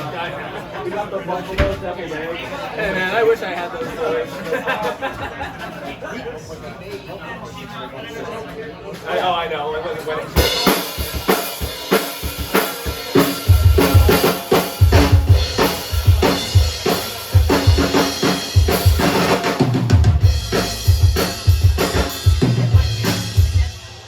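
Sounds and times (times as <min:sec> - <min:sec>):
drum kit beat: 0:10.4 - 0:24.0.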